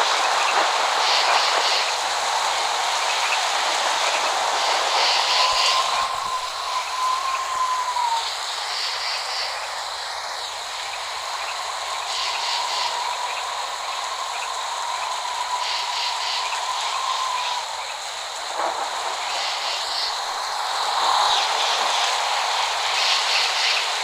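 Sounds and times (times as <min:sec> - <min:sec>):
steady rain hiss: 0:00.0 - 0:24.0
wavering whistle-like tone: 0:04.9 - 0:09.6, 0:12.0 - 0:18.0.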